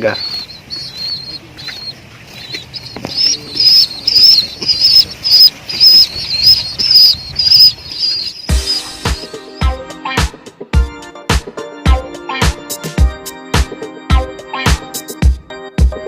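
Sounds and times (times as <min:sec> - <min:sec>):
young pigeons peeping: 0:00.0 - 0:09.8.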